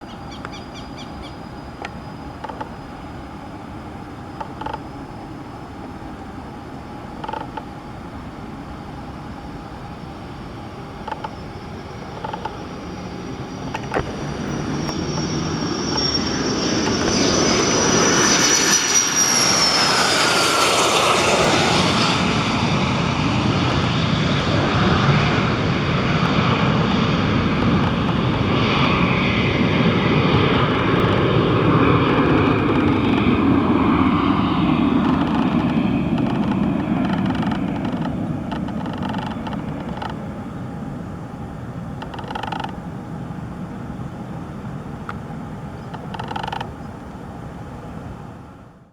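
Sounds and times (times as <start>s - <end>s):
jet roar: 0.0s - 48.6s
high jet whine: 0.0s - 48.9s
faint clicks: 11.0s - 11.4s, 12.1s - 12.8s, 35.0s - 40.2s, 42.0s - 42.8s, 45.0s - 47.2s.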